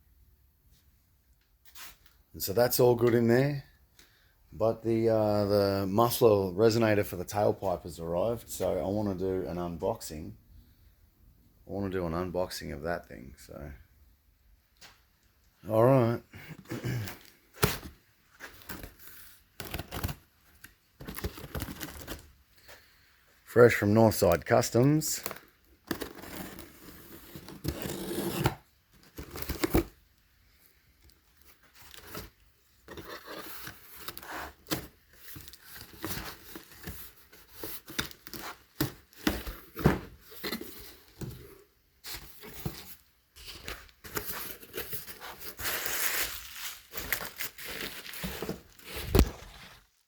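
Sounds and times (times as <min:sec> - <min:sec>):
packing paper tearing: 0:25.9 - 0:29.9
packing rustling: 0:42.1 - 0:50.0.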